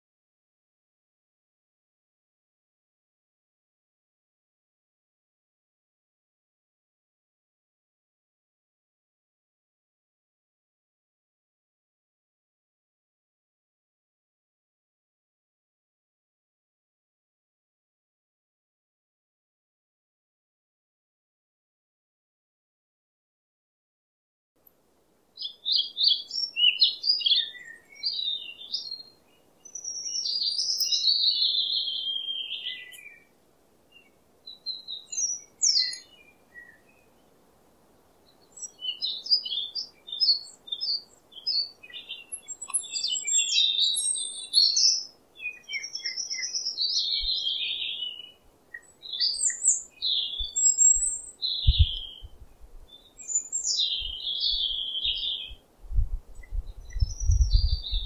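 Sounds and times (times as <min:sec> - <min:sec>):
faint steady hiss: 0:24.6 - 0:57.4
small birds chirping and singing: 0:25.4 - 0:58.0.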